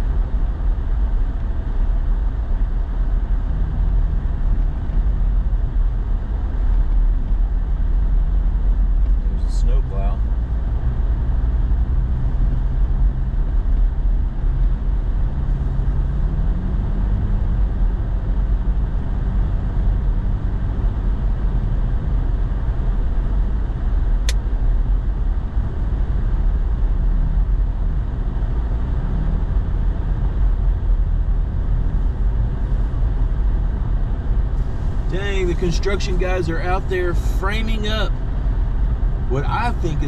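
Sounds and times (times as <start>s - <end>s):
road rumble: 0.0s - 40.0s
truck engine running: 12.0s - 40.0s
sharp click: 24.2s - 24.4s.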